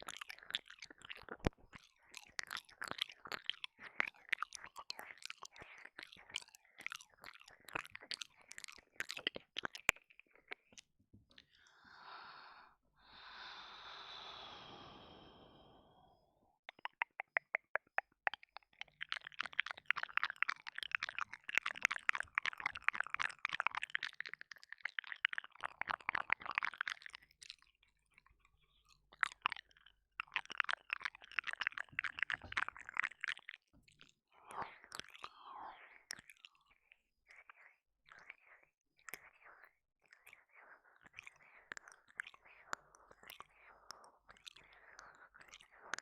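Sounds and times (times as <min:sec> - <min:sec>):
wet tongue and lip clicks: 0:00.0 - 0:11.7, 0:16.7 - 0:46.0
soft breathy hiss: 0:11.7 - 0:16.2.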